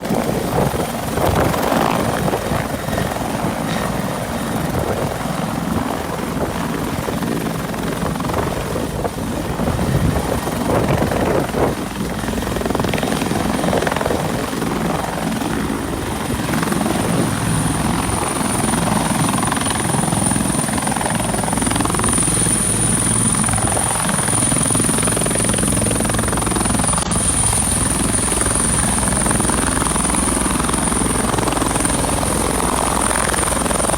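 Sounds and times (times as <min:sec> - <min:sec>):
helicopter rotor and turbine: 0:00.0 - 0:33.9.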